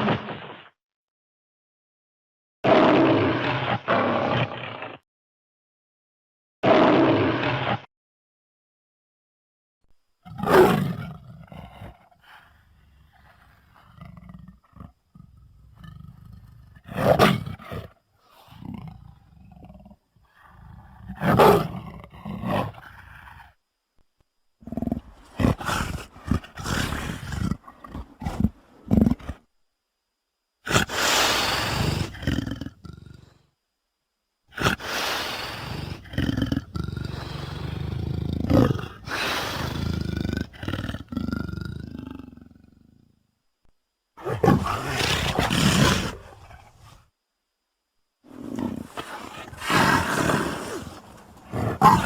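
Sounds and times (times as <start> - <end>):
person roaring and growling: 44.2 - 46.4, 48.3 - 52.0.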